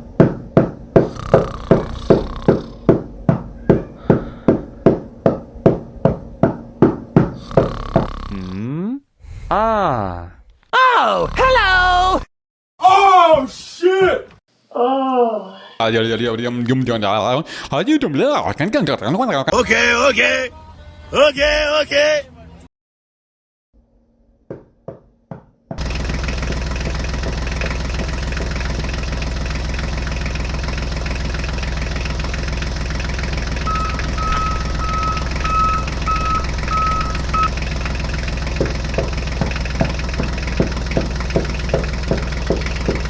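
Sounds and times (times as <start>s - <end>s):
engine running: 0.0s - 8.1s, 25.8s - 43.0s
regular knocking: 0.0s - 8.1s, 24.5s - 29.0s, 33.2s - 43.0s
high beeps: 33.5s - 37.5s.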